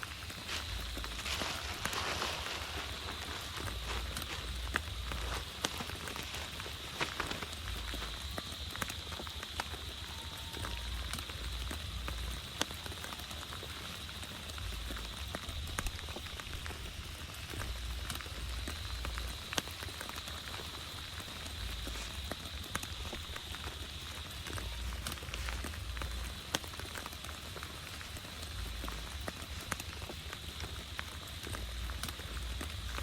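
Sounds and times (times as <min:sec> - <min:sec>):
low uneven rumble: 0:00.0 - 0:09.1
heavy rain falling: 0:00.0 - 0:33.0
raindrops tapping sharply: 0:00.0 - 0:33.0.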